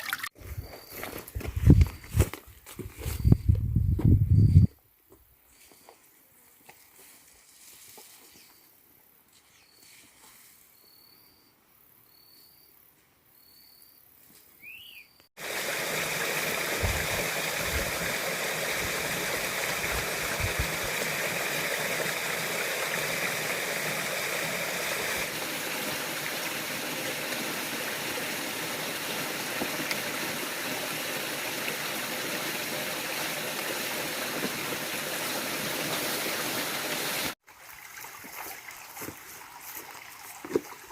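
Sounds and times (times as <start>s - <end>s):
stream rushing: 15.4s - 40.9s.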